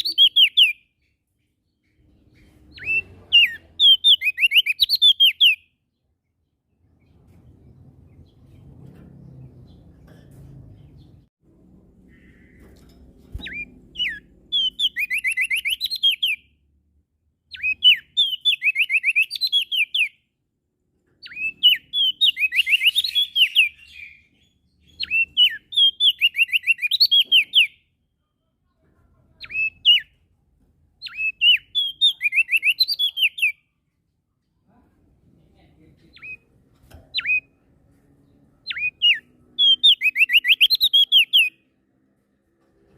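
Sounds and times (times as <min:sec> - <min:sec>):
songbird whistling phrases: 0:00.0 - 0:00.8, 0:02.7 - 0:05.6, 0:13.6 - 0:16.4, 0:17.5 - 0:20.2, 0:21.2 - 0:27.8, 0:31.0 - 0:33.6, 0:37.2 - 0:37.5, 0:38.7 - 0:41.6.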